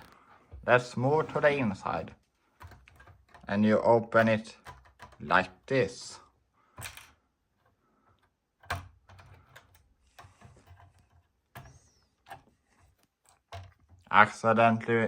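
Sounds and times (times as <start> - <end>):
plastic pieces clicking: 2.4 - 5.6, 6.7 - 14.2.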